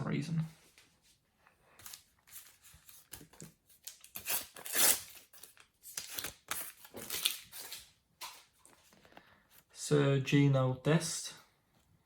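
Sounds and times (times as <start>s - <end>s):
stickers and foil packets crinkling: 1.8s - 7.9s.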